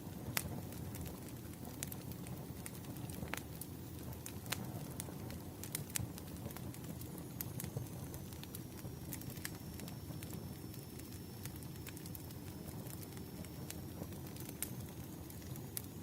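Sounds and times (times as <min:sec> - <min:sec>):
firewood crackling and popping: 0:00.0 - 0:16.0
low rumble of flame: 0:00.0 - 0:16.0.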